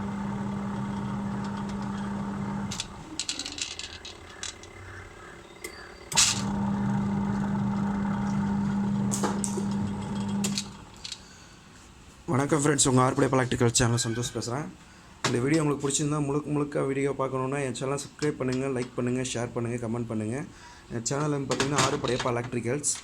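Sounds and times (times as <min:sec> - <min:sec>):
washing machine motor humming: 0:00.0 - 0:03.2, 0:06.1 - 0:11.1
clicks and rattles: 0:01.4 - 0:04.8.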